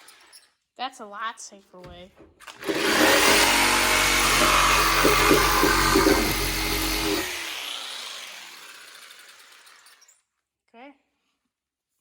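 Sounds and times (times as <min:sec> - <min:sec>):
power saw cutting wood: 0:02.4 - 0:10.1
saw motor winding down: 0:02.5 - 0:10.1.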